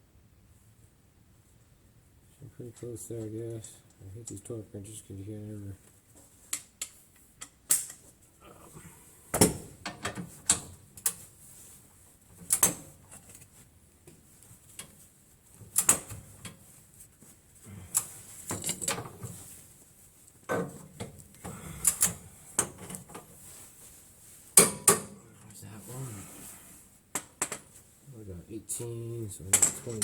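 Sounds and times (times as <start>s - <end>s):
hand tools clanking on bolts: 29.5s - 30.0s.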